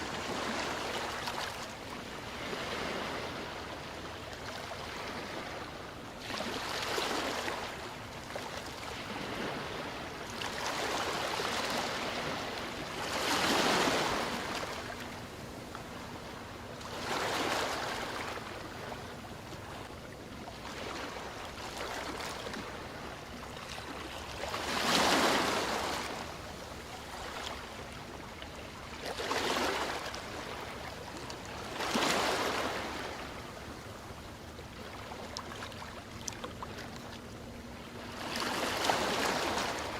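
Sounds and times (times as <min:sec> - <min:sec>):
ocean waves breaking: 0:00.0 - 0:19.9, 0:20.5 - 0:34.0, 0:34.7 - 0:39.9.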